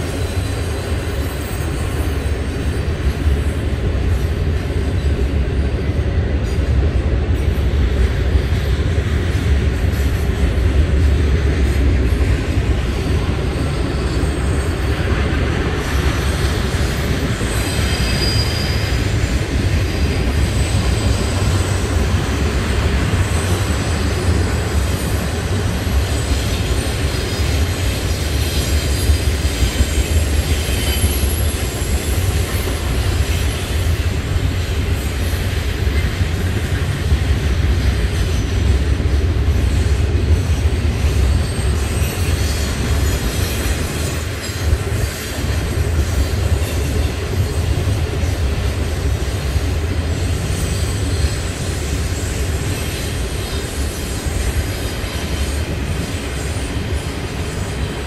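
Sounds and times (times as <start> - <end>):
freight train rumbling past: 0.0 - 58.0
high-pitched wheel squeals: 16.1 - 22.5.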